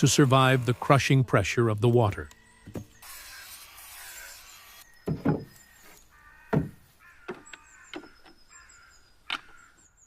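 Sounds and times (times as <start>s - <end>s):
faint birds calling: 2.1s - 10.0s
sharp knocks on timber: 5.0s - 5.5s, 6.5s - 8.1s.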